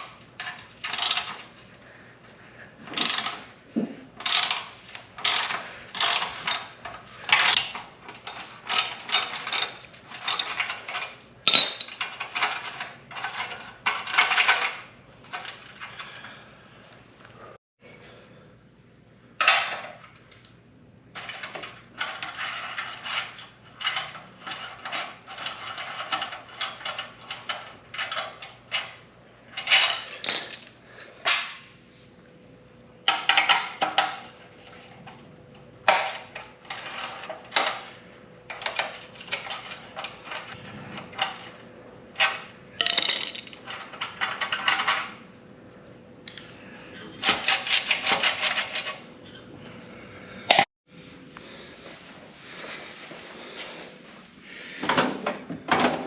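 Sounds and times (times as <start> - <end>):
metal parts clinking: 0.0 - 1.6, 2.8 - 3.6, 4.2 - 16.1.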